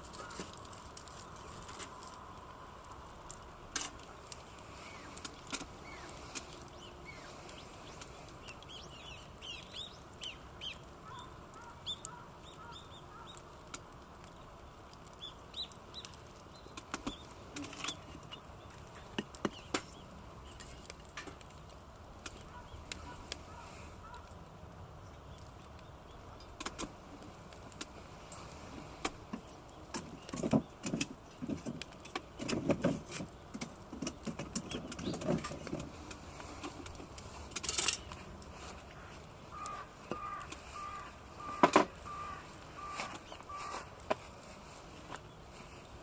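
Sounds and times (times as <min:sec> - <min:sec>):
steady low background noise: 0:00.0 - 0:32.4
birds chirping: 0:04.0 - 0:13.6, 0:14.2 - 0:20.9, 0:22.3 - 0:26.6, 0:33.3 - 0:46.0.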